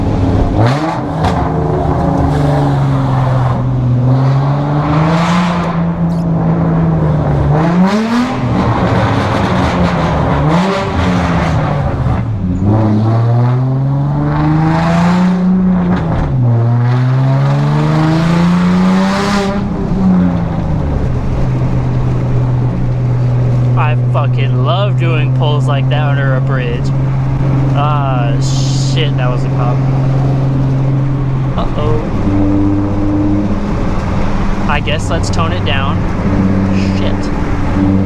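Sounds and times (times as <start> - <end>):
car engine accelerating: 0.0 - 38.0
road noise: 0.0 - 38.0.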